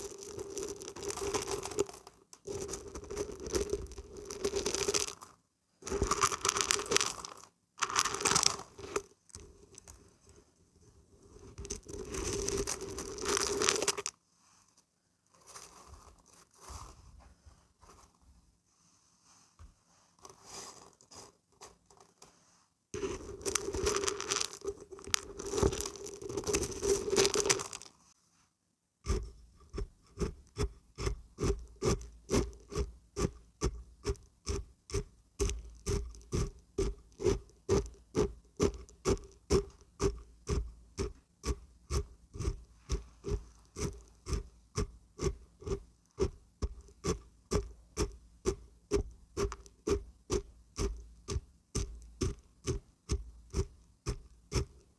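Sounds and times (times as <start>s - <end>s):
dried beans rattling when shaken: 0.0s - 9.1s, 11.6s - 14.1s, 23.0s - 28.0s.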